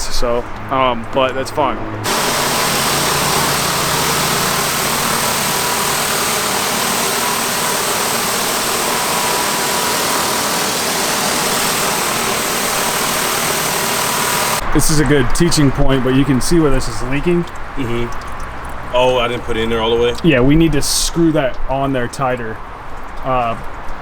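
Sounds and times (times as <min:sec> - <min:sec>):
loud hiss of water: 0:02.0 - 0:14.6
pressure washer engine running: 0:02.0 - 0:14.6.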